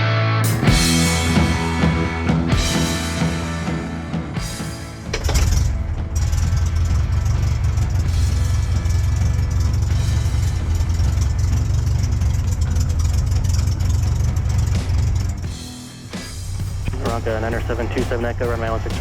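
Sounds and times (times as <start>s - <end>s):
aircraft engine rumbling: 0.6s - 15.7s, 16.3s - 19.0s.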